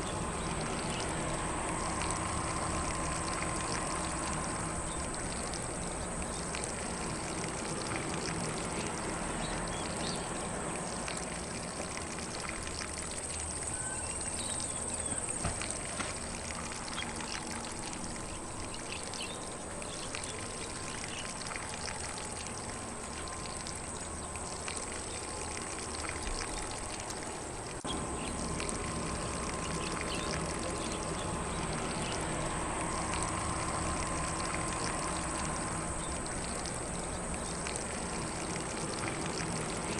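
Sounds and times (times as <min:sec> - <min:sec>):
lawn sprinkler spraying: 0:00.0 - 0:39.9
faint bird chirps: 0:13.6 - 0:15.4.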